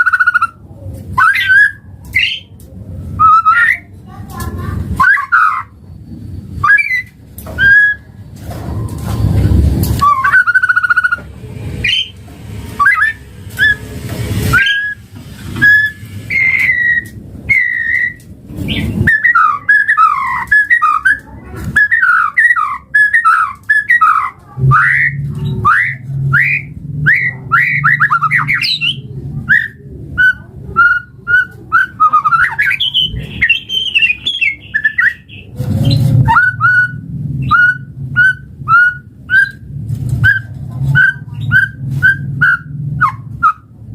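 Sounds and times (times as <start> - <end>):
bird singing whistled song: 1.2 - 2.5, 3.2 - 3.8, 5.0 - 5.7, 6.6 - 8.1, 10.0 - 11.2, 11.8 - 12.1, 12.8 - 13.9, 14.5 - 15.0, 15.6 - 21.2, 21.8 - 39.6, 40.2 - 43.6.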